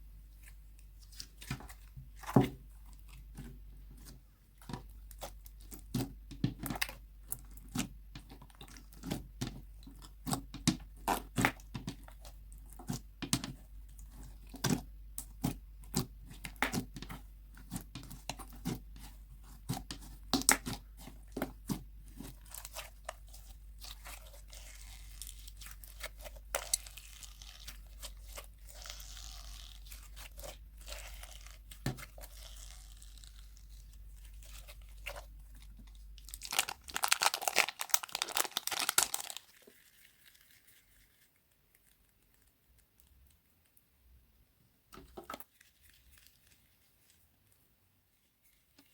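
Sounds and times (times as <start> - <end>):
slime crackling and popping: 19.5 - 43.4.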